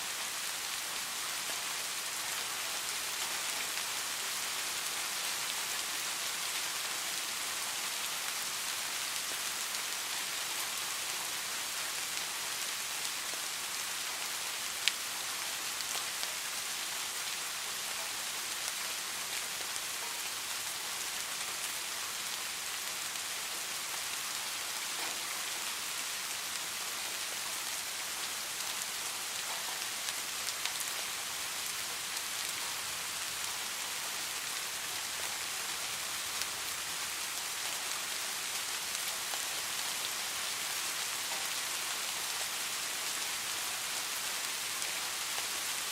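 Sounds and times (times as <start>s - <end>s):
rain falling: 0.0s - 45.9s.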